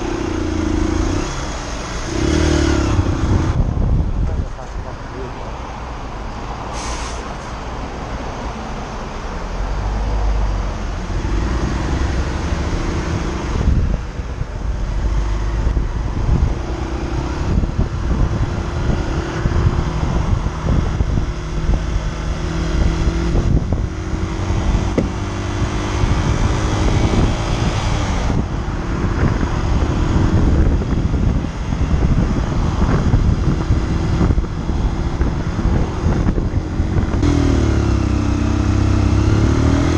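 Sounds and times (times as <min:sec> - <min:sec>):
motorcycle engine: 0:00.0 - 0:03.7, 0:19.5 - 0:27.6, 0:30.2 - 0:39.9
wind buffeting microphone: 0:00.0 - 0:05.3, 0:11.1 - 0:39.9.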